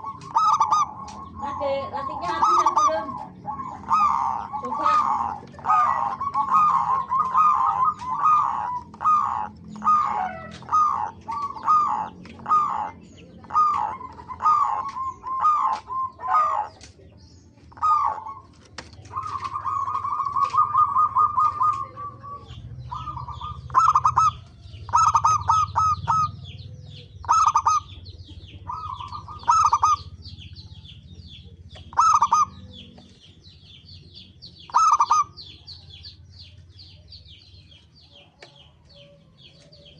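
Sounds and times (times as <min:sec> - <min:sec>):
doves cooing: 0:00.0 - 0:39.9
small birds chirping: 0:00.0 - 0:39.9.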